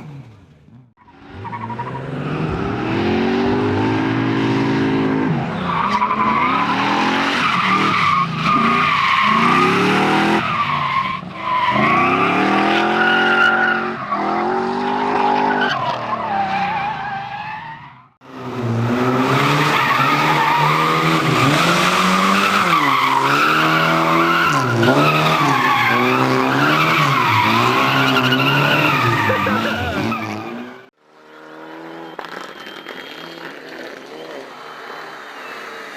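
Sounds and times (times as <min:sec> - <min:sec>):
car engine revving hard: 0:01.2 - 0:05.4
tyres squealing: 0:19.6 - 0:30.9.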